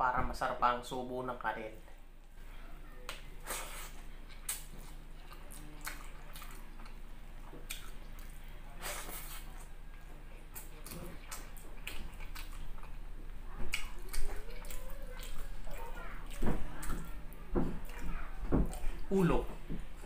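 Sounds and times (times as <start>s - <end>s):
wet chewing and lip-smacking: 3.1s - 19.0s.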